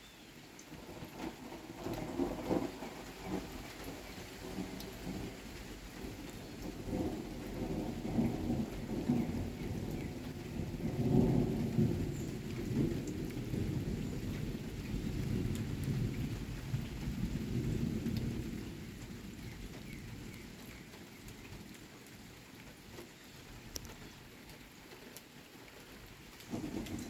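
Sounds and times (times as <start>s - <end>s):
steady rain: 0.0s - 27.0s
raindrop ticks: 0.6s - 27.0s
thunder rumbling: 0.8s - 19.9s, 26.4s - 27.0s.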